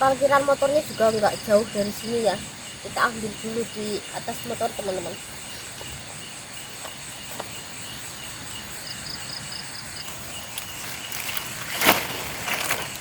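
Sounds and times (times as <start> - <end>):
night insects chirping: 0.0 - 13.0
rustling crunches: 10.1 - 13.0.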